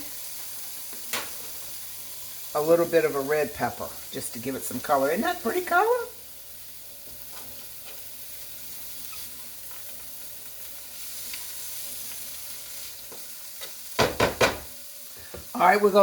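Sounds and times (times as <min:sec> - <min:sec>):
vegetables sizzling in a pan: 0:00.0 - 0:16.0
loud knocks: 0:14.0 - 0:14.7.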